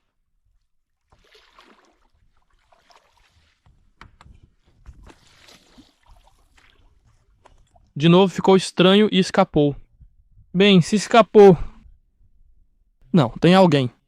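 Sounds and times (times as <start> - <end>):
faint water sloshing: 0.0 - 8.0.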